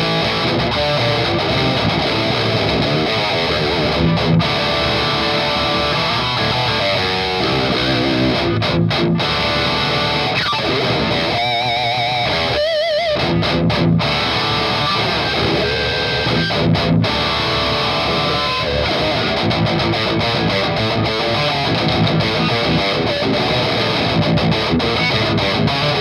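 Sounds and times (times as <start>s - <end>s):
distorted electric guitar riffs: 0.0s - 26.0s.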